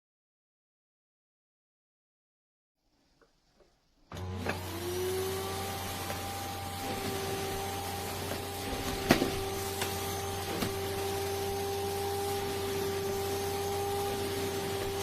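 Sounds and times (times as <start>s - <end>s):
vacuum cleaner running: 4.1s - 15.0s.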